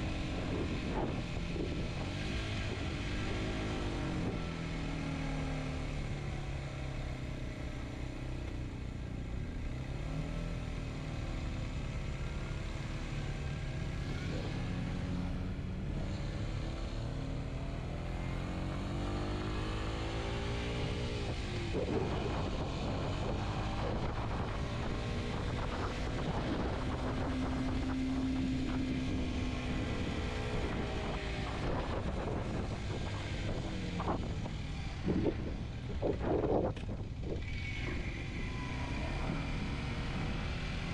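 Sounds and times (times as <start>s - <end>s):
motorcycle engine revving: 9.3s - 40.9s.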